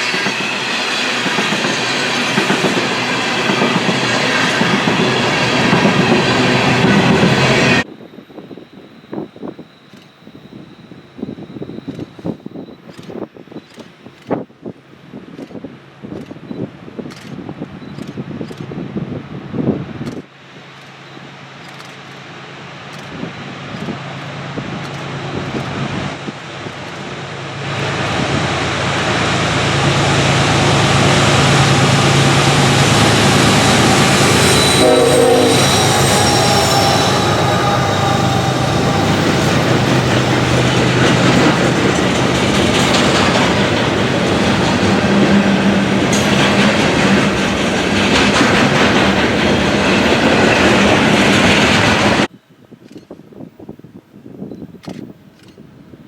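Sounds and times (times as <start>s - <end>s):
diesel train passing: 0.0s - 52.6s
train horn tone: 27.9s - 47.3s.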